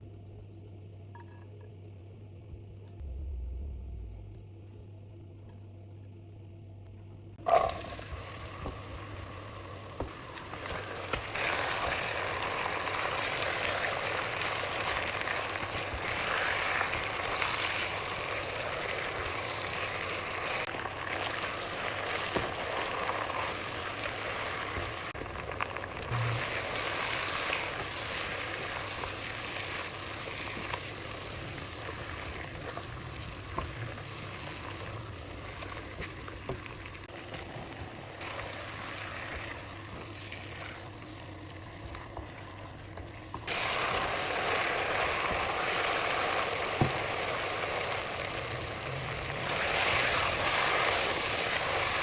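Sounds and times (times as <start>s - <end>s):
faint low hum: 0.0s - 11.1s
food sizzling in hot oil: 7.4s - 42.7s, 43.3s - 52.0s.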